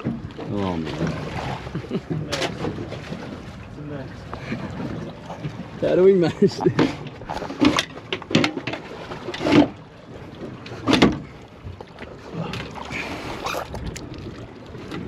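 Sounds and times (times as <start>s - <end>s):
water washing: 0.0s - 15.0s
knocks aboard a boat: 2.0s - 3.4s, 6.6s - 9.8s, 10.4s - 11.8s.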